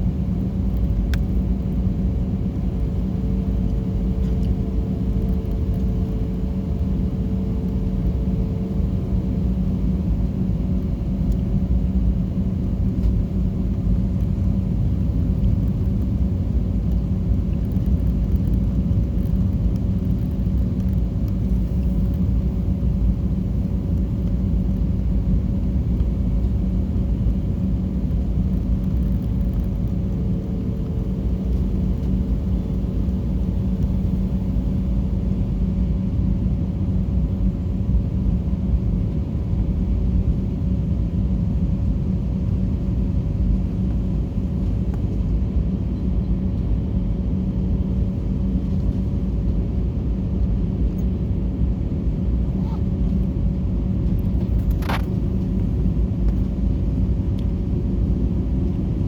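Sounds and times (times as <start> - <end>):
airliner cabin engine rumble: 0.0 - 59.0
constant hum: 0.0 - 59.0.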